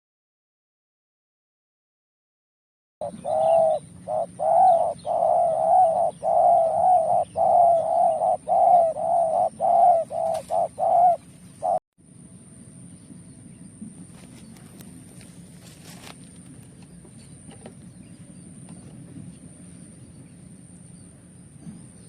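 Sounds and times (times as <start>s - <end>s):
dove cooing: 3.0s - 11.8s.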